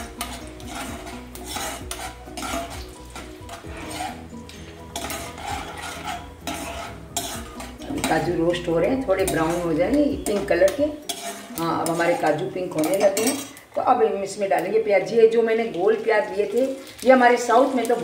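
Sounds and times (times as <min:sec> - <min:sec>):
metal spoon scraping a pan: 0:00.0 - 0:13.6
nuts and seeds sizzling in oil: 0:00.0 - 0:18.0.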